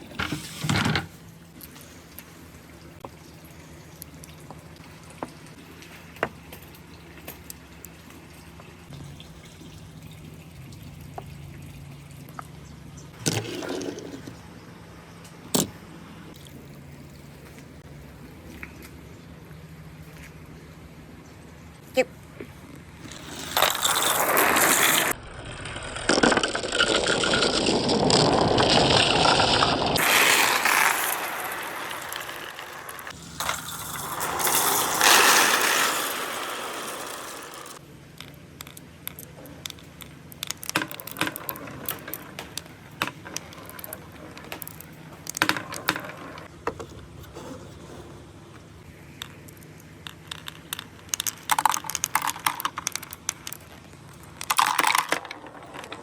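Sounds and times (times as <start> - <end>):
marbles rolling rush: 23.0 - 37.8, 40.4 - 46.5, 49.2 - 56.0
marbles clicking on track: 23.1 - 46.5, 49.2 - 56.0.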